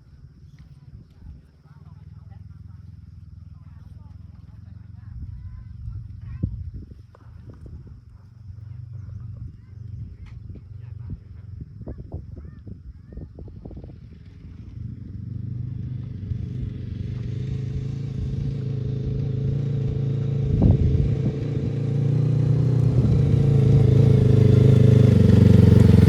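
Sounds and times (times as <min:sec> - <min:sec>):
motorcycle engine approaching: 0:00.0 - 0:26.0.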